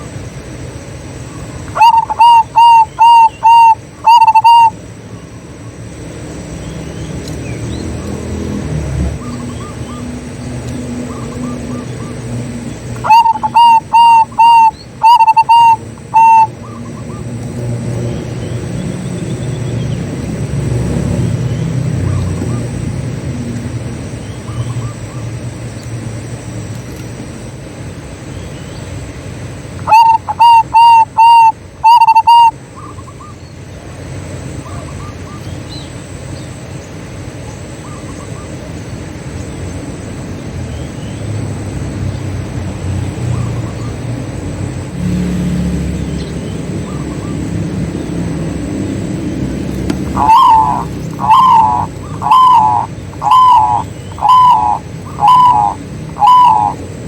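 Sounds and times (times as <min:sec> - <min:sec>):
faint bird chirps: 0:01.3 - 0:05.8, 0:12.8 - 0:17.3, 0:29.8 - 0:33.7, 0:49.8 - 0:56.9
dove cooing: 0:01.6 - 0:04.8, 0:10.9 - 0:18.0, 0:29.8 - 0:33.0, 0:46.9 - 0:57.0
low background rumble: 0:45.7 - 0:57.0.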